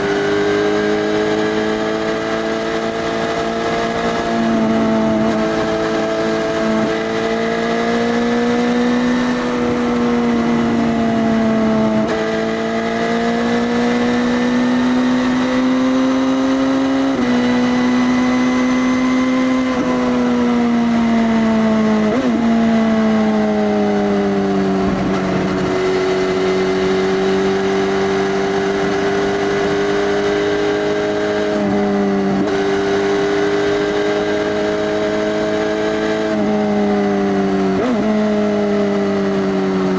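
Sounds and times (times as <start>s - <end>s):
motorcycle engine running: 20.6s - 39.9s.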